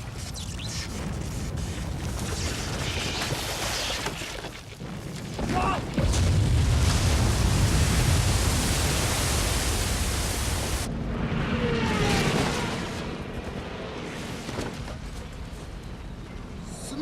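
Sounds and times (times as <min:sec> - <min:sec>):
loud rushing roar: 0:07.2 - 0:14.5.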